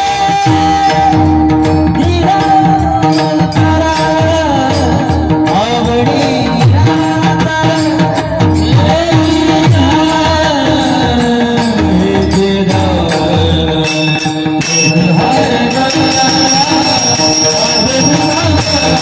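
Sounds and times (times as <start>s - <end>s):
person singing devotional song: 0.0s - 19.0s
high ringing tone: 8.6s - 19.0s.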